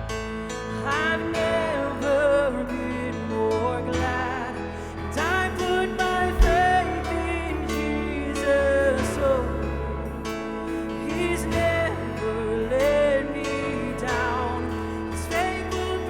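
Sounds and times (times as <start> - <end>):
gliding lead melody: 0.0 - 16.0
worship band playing: 0.0 - 16.0
sharp low hit: 6.3 - 6.9.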